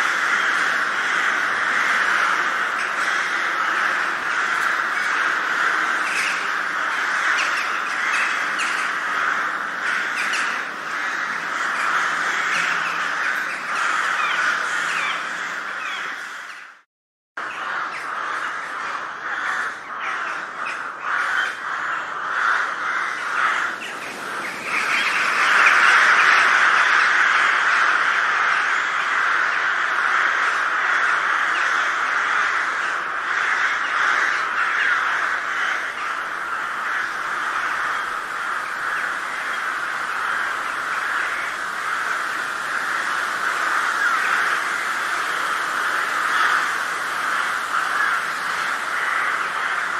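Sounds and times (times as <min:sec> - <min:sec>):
crows cawing: 0:00.0 - 0:16.8, 0:17.4 - 0:49.9.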